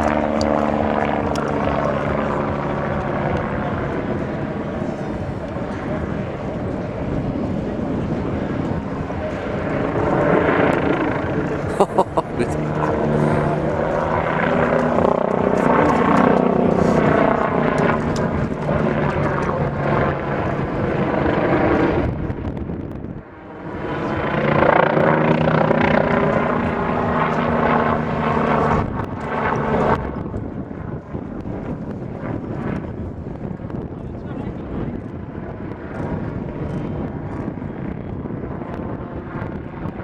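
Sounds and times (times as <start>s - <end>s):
helicopter flying: 0.0s - 40.0s.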